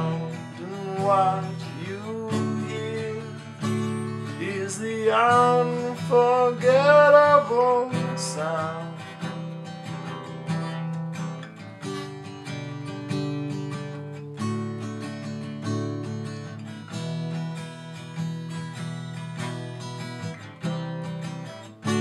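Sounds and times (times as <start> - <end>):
person singing: 0.0 - 9.1
acoustic guitar strumming: 0.0 - 22.0.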